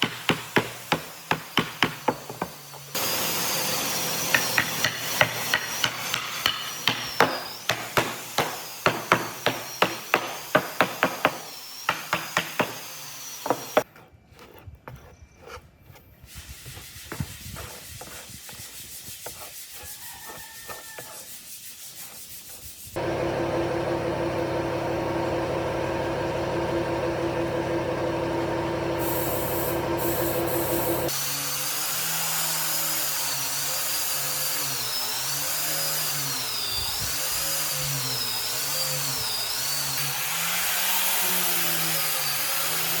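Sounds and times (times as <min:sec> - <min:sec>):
sharp tool strokes on wood: 0:00.0 - 0:23.0
power tool running: 0:00.1 - 0:13.9, 0:23.0 - 0:43.0
knocks and scraping on wood: 0:13.5 - 0:16.2.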